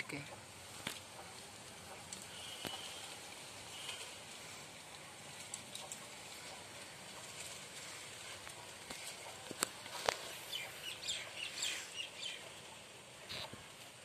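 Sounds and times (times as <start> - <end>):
birds chirping: 10.0 - 13.5.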